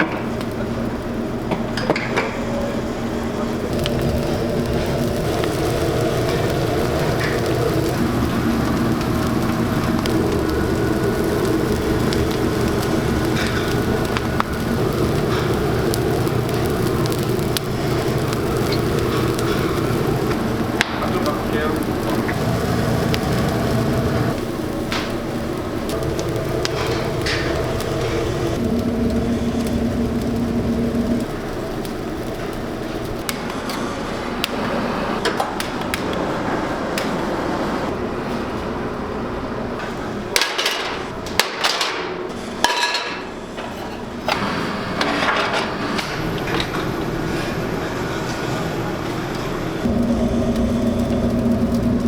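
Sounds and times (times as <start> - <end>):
machine hum: 0.0 - 41.3, 43.3 - 52.0
steady background rush: 0.9 - 42.4.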